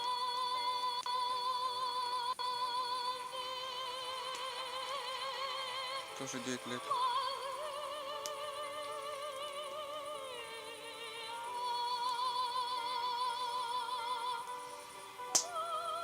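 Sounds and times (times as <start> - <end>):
girl singing opera: 0.0 - 16.0
musical accompaniment: 0.0 - 16.0
sharp crack: 15.3 - 15.6.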